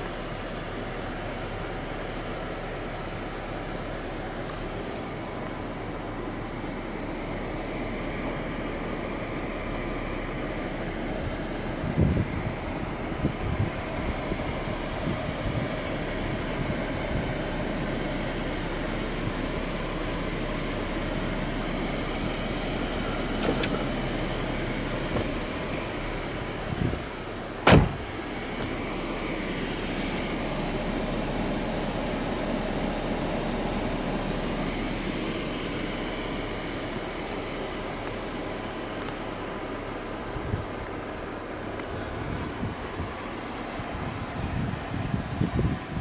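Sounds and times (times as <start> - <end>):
car engine idling: 0.0 - 46.0
sharp knock: 27.6 - 28.0.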